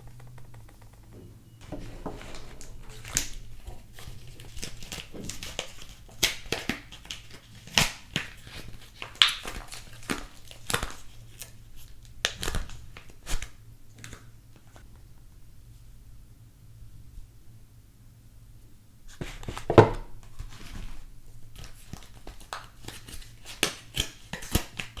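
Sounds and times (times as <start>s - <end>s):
wrapper crinkling and tearing: 2.3s - 14.2s, 21.5s - 25.0s.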